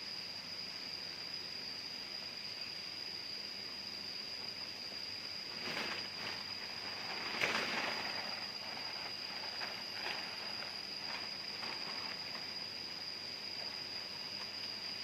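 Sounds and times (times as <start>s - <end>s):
insects droning: 0.0s - 15.0s
rustling: 5.5s - 15.0s.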